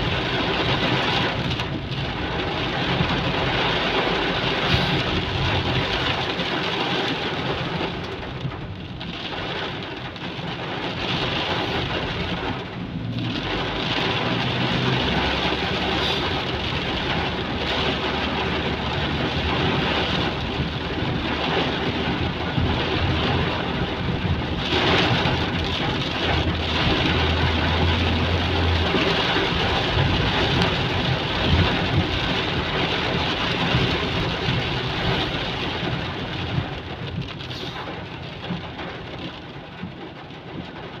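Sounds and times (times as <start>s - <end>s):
heavy rain pouring: 0.0s - 41.0s
low rumble: 11.0s - 39.2s.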